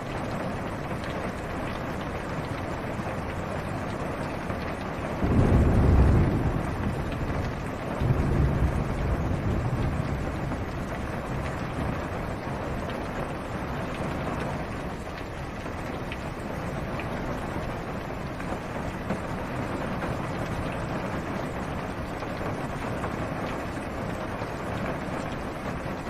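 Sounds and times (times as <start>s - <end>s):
rain on a car roof: 0.0s - 26.0s
low thunder rumbling: 5.0s - 13.1s.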